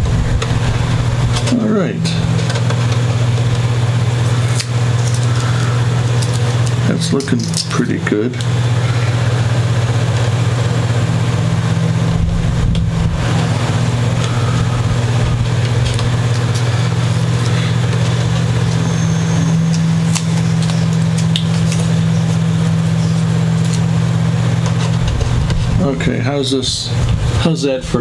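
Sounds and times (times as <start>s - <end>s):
steady low tonal hum: 0.0s - 28.0s
masking tape crinkling: 0.4s - 26.0s.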